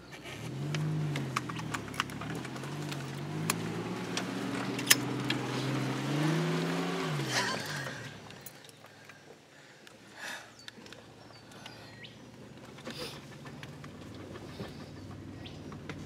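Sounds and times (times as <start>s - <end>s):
vehicle clicks and knocks: 0.0s - 5.8s, 10.6s - 16.0s
car engine revving under throttle: 0.2s - 8.5s.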